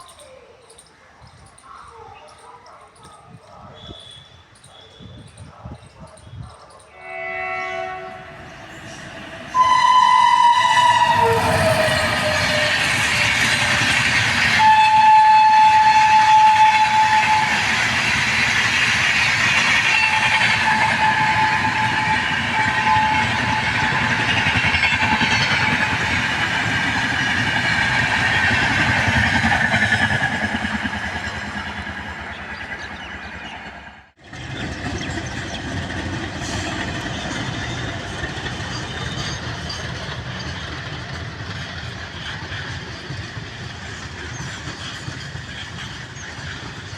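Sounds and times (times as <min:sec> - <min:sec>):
train wheels on rail: 0:00.0 - 0:46.9
train horn: 0:06.9 - 0:17.9, 0:19.8 - 0:26.2.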